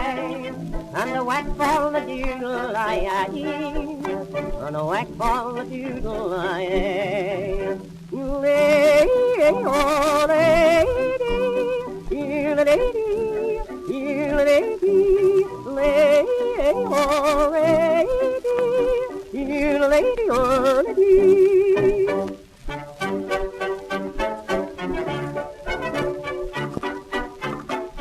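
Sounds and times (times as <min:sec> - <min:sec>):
person yodeling: 0:00.0 - 0:22.3
band accompaniment: 0:00.0 - 0:28.0.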